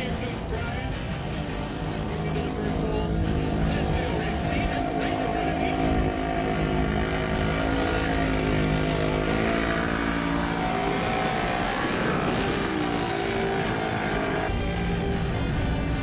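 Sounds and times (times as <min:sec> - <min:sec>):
racing engine running: 0:00.0 - 0:16.0.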